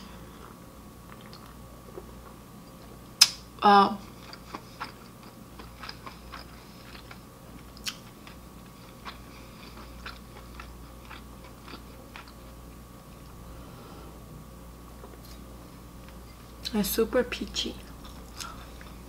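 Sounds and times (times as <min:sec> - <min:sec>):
person chewing food: 0:00.3 - 0:03.4, 0:04.0 - 0:13.5, 0:17.8 - 0:19.0.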